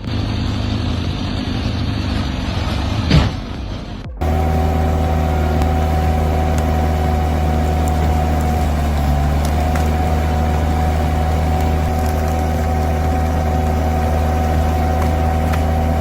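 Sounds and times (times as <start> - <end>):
engine running steadily: 0.0 - 16.0
steady high whine: 3.6 - 16.0.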